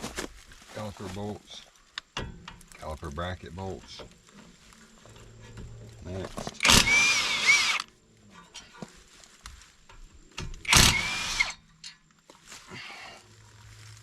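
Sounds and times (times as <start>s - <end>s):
impact wrench whine: 6.6s - 7.9s, 10.4s - 11.6s.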